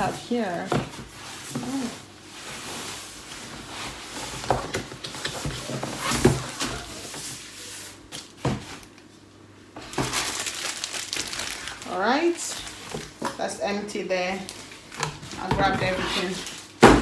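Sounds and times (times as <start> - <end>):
packaging rustling: 9.8 - 13.3, 14.3 - 15.4
items knocking against cardboard box: 16.8 - 17.0.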